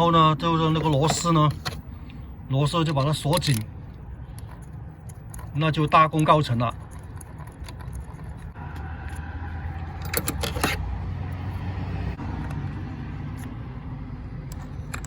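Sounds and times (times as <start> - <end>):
metallic clicks and rattling: 2.8 - 8.6, 9.9 - 10.9, 14.4 - 15.0.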